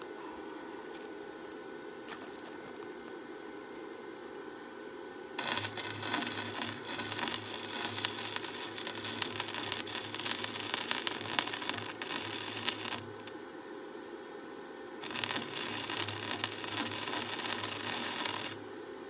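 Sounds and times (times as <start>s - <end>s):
crackling welding arc: 5.4s - 13.3s, 15.0s - 18.6s
welding machine hum: 5.4s - 13.4s, 15.0s - 18.8s.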